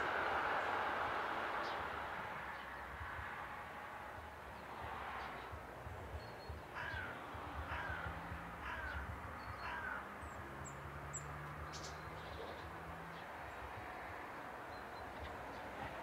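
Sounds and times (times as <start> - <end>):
bird cawing: 6.7 - 10.1.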